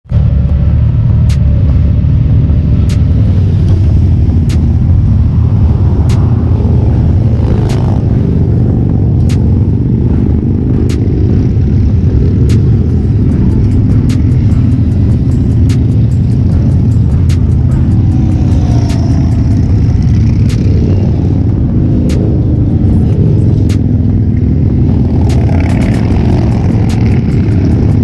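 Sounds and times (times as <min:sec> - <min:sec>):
motorcycle engine running: 0:00.1 - 0:28.0
music with a regular beat: 0:12.3 - 0:20.9, 0:25.1 - 0:28.0.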